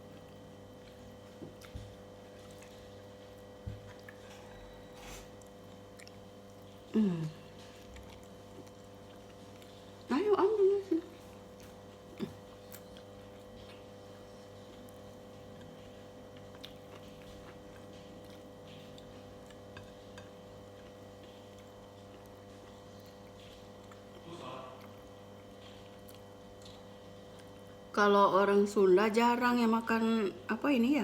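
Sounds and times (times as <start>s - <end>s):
person eating and chewing: 0.0s - 27.9s
low electrical hum: 0.0s - 31.0s.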